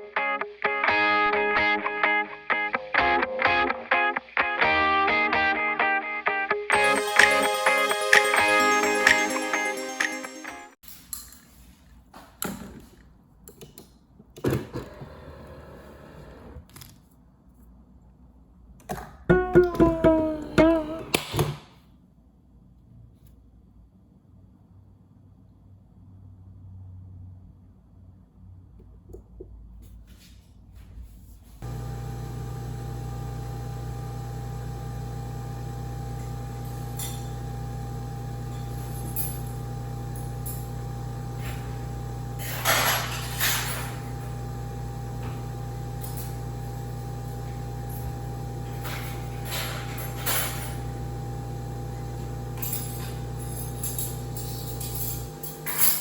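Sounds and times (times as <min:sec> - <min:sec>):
kitchen appliance humming: 0:14.5 - 0:16.6, 0:31.6 - 0:56.0
glass and dishes clinking: 0:42.5 - 0:44.1.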